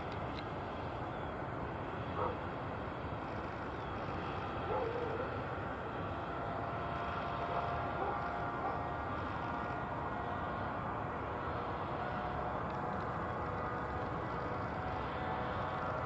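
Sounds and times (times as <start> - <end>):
distant jet engines running: 0.0 - 16.0
faint whine: 0.0 - 16.0.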